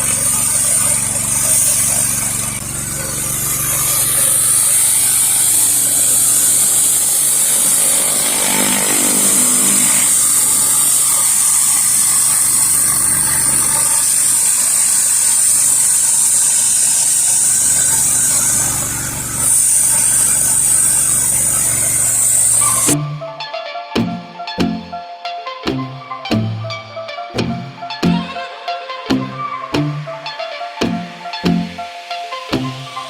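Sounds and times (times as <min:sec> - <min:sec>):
high hiss of water jets: 0:03.3 - 0:23.0.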